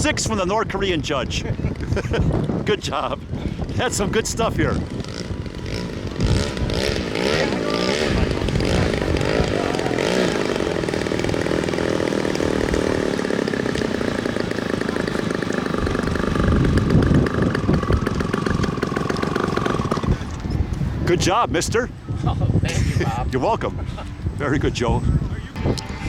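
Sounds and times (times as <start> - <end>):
model airplane engine at high revs: 4.8 - 20.4.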